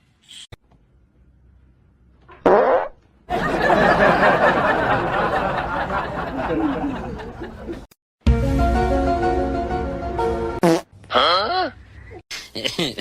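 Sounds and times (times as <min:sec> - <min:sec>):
people laughing and chattering: 0:03.3 - 0:07.9
music with held notes: 0:08.3 - 0:10.6.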